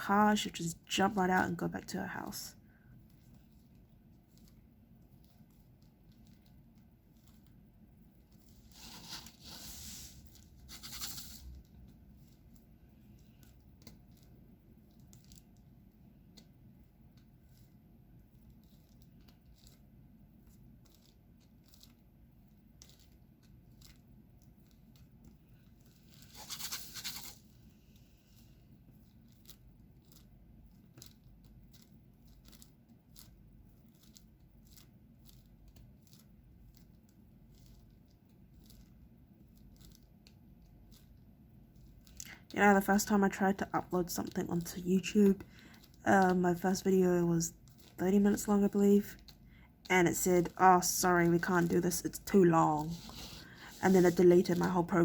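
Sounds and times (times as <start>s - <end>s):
scraping and rustling: 8.2s - 15.5s, 25.6s - 30.2s, 52.7s - 55.0s.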